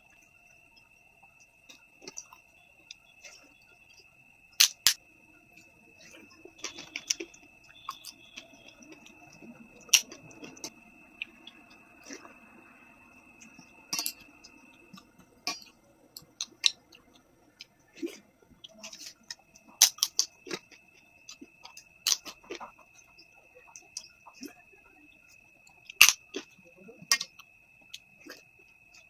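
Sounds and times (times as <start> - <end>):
crunchy chewing: 1.4 - 29.0.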